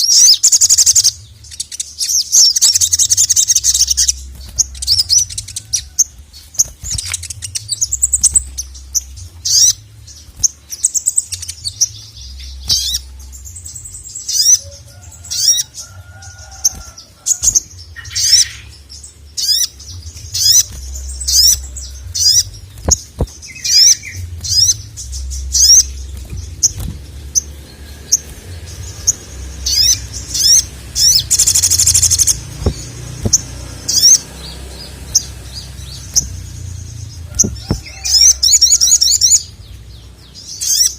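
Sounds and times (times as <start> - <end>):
low hum: 17.7 - 38.4.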